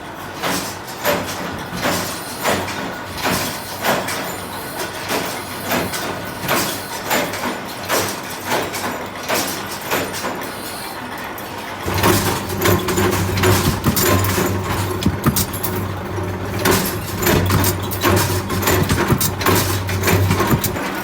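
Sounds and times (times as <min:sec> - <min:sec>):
machine hum: 0:11.9 - 0:21.0
machine sharp strokes: 0:11.9 - 0:21.0.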